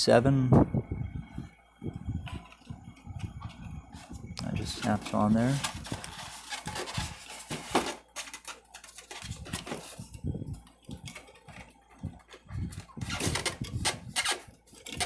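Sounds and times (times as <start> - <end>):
plastic parts clicking and tapping: 4.8 - 15.0.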